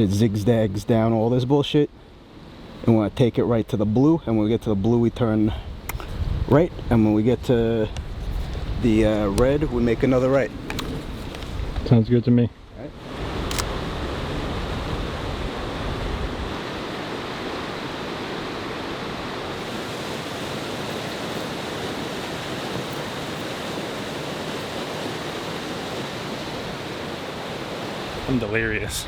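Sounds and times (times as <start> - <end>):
waterfall roaring: 16.6 - 29.0.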